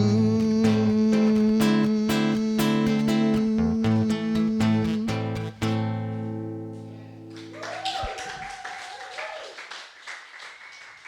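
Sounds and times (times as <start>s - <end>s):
acoustic guitar chord ringing: 0.0s - 7.4s
light clapping: 7.3s - 11.0s.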